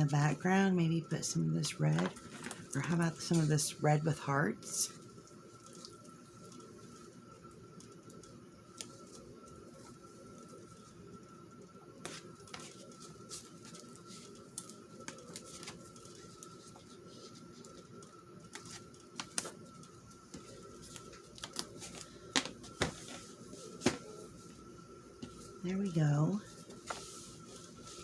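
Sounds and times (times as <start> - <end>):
faint steady high hum: 0.0 - 28.0
tape and paper rustling: 12.0 - 24.3.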